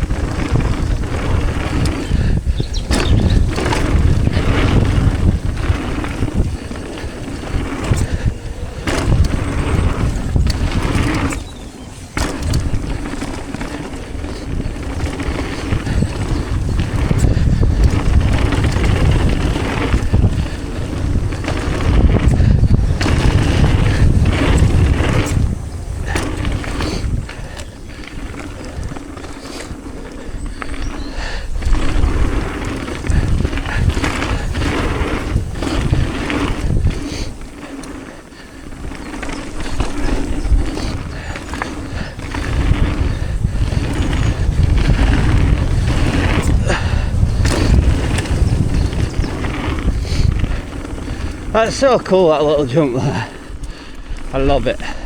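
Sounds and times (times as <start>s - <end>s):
bike rattling and knocking: 0.0s - 55.0s
bike tyres rumbling on dirt: 0.0s - 55.0s
wind buffeting microphone: 0.0s - 55.0s.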